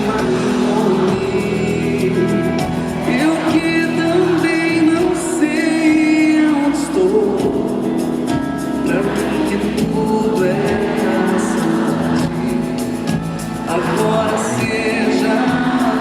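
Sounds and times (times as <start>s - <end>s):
live band playing: 0.0s - 16.0s
person singing: 0.0s - 16.0s.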